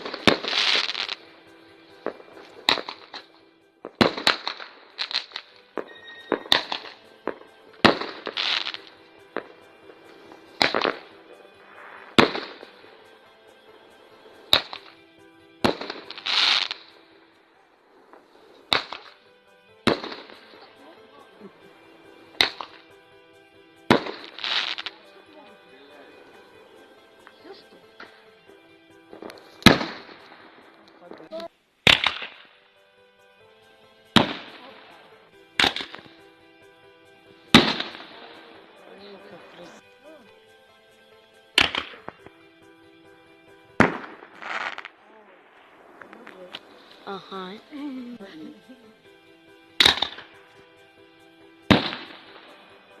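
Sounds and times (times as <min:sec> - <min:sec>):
fireworks bangs: 0:00.0 - 0:15.0, 0:15.6 - 0:17.2, 0:17.8 - 0:20.8, 0:21.5 - 0:23.0, 0:23.8 - 0:27.4, 0:29.1 - 0:32.6, 0:34.2 - 0:36.2, 0:37.5 - 0:39.7, 0:43.7 - 0:47.7, 0:49.8 - 0:50.5, 0:51.6 - 0:53.0
hissing crackle: 0:00.0 - 0:19.3, 0:23.8 - 0:28.4, 0:43.8 - 0:49.1, 0:49.8 - 0:50.6.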